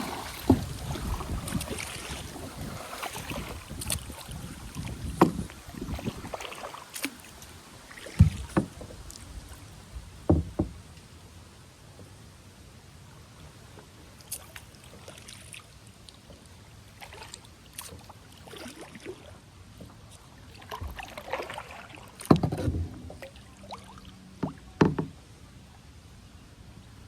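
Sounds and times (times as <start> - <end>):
paddle knocking on kayak: 0.0 - 7.2, 7.9 - 10.9, 22.2 - 23.2, 24.4 - 25.2
paddle splashing in water: 0.0 - 25.2.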